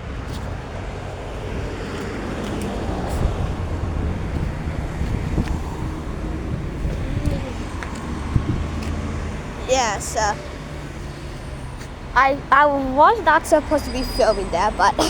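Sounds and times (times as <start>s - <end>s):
wind rumbling on microphone: 0.0s - 9.7s
road traffic: 0.0s - 15.0s.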